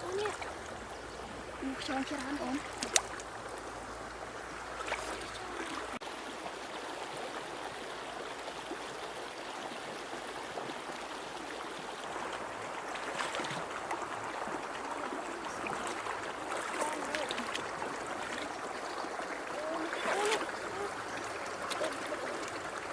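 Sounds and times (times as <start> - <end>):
small splashes: 0.0 - 3.9, 4.6 - 6.0, 12.2 - 22.9
river water running over stones: 0.0 - 22.9.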